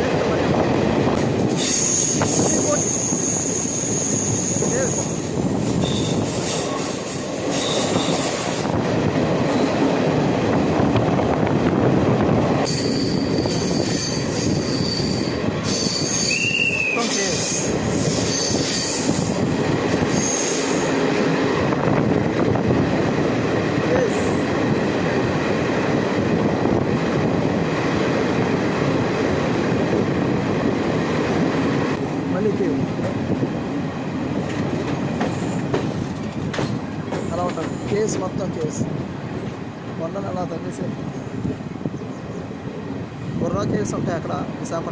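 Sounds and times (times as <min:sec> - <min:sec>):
train wheels rumbling on rails: 0:00.0 - 0:44.9
high-pitched wheel squeal: 0:01.6 - 0:09.0, 0:12.7 - 0:19.4, 0:20.1 - 0:21.0.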